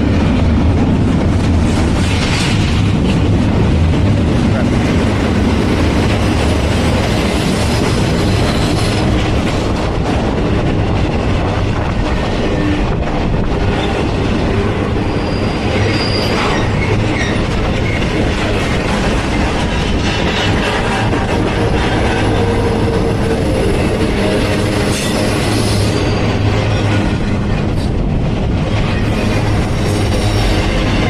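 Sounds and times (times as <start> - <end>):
train wheels rumbling on rails: 0.0 - 31.0
wheels squealing: 15.0 - 18.0.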